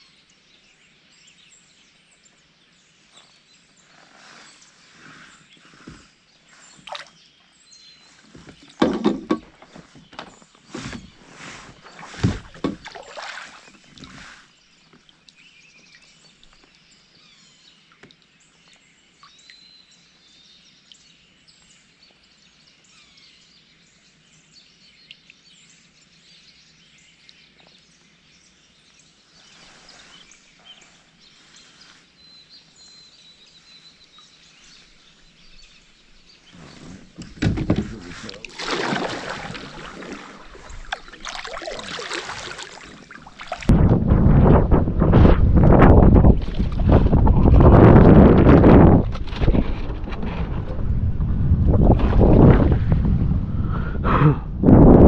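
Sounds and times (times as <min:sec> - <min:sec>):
wind on microphone: 0:10.6 - 0:13.1, 0:36.4 - 0:55.0
river flowing: 0:38.0 - 0:43.7.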